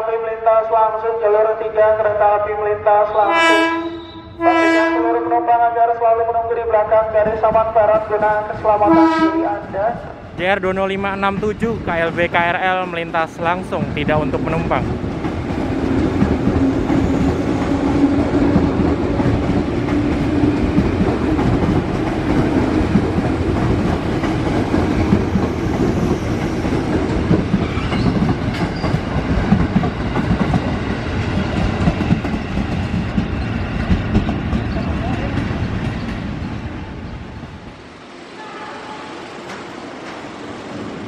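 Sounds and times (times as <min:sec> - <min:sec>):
train wheels rumbling on rail: 0:07.0 - 0:41.0
clickety-clack over rail joints: 0:07.1 - 0:36.4, 0:39.4 - 0:40.9.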